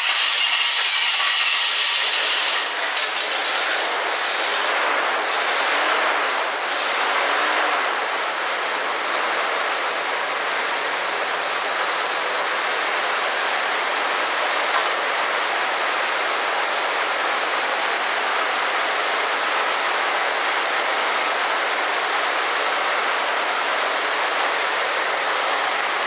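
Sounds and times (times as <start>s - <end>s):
engine cranking with starter: 0.0s - 7.4s.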